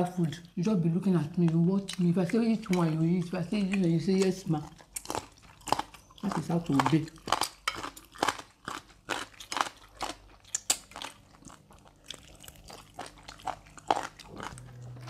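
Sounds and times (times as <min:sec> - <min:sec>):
person chewing and biting: 0:03.6 - 0:15.0.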